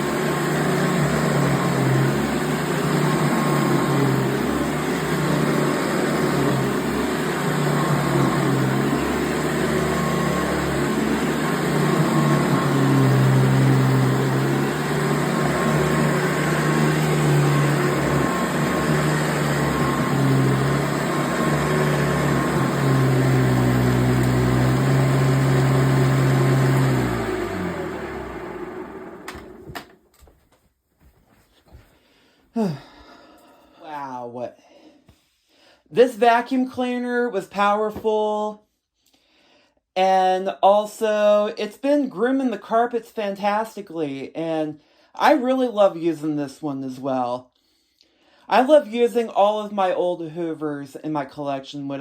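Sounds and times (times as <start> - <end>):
vacuum cleaner motor hum: 0.0 - 30.0.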